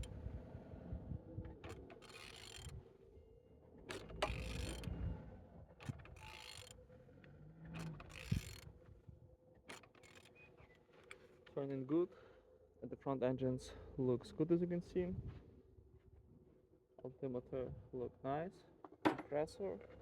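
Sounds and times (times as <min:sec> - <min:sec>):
engine crank clicking and rasping: 0:01.5 - 0:02.8, 0:03.9 - 0:05.0, 0:05.8 - 0:08.7, 0:09.7 - 0:11.2.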